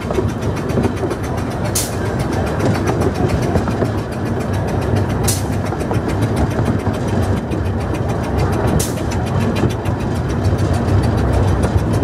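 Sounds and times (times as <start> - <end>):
carriage wheels rumbling on rails: 0.0 - 12.0
fine rapid ticking: 0.0 - 12.0
sharp clack: 0.0 - 12.0.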